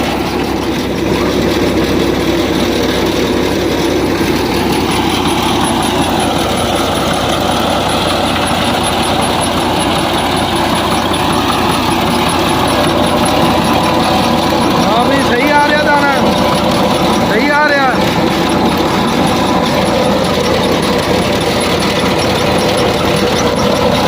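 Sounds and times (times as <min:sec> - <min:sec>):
tractor engine and thresher running: 0:00.0 - 0:24.0.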